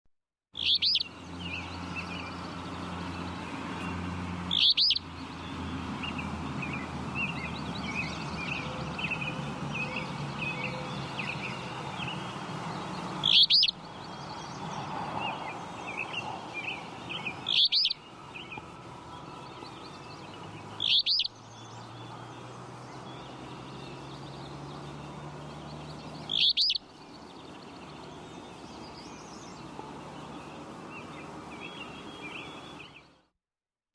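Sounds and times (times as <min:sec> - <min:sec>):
birds twittering: 0:00.6 - 0:33.3
flycatcher short high calls: 0:04.5 - 0:05.1, 0:06.0 - 0:22.2, 0:26.2 - 0:26.9.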